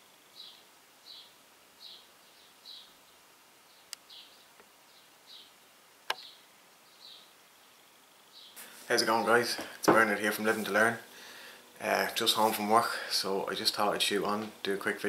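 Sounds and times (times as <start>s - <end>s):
sharp clicks: 6.0s - 6.3s.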